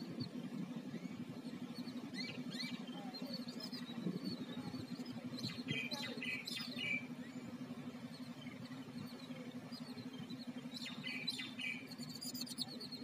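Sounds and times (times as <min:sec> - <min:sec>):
birds chirping and calling: 0:00.0 - 0:13.0
harsh bird calls: 0:00.0 - 0:13.0
steady low hum: 0:00.0 - 0:13.0.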